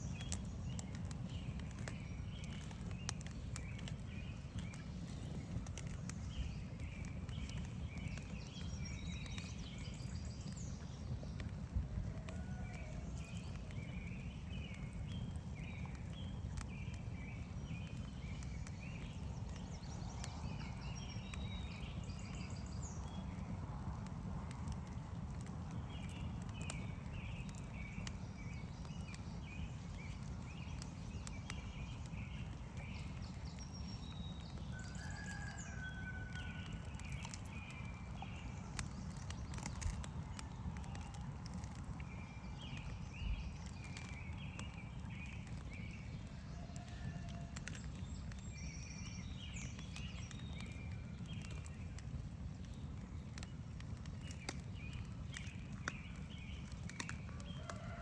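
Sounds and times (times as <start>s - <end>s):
campfire popping and crackling: 0.0s - 58.0s
small birds chirping: 0.0s - 58.0s.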